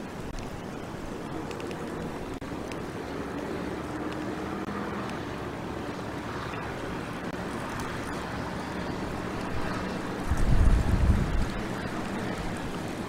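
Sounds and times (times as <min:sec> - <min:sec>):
wind on microphone: 0:08.9 - 0:13.0.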